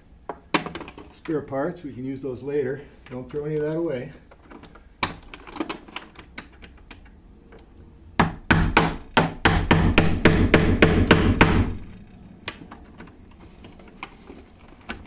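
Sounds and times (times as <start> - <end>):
hammer striking door: 8.2 - 12.0.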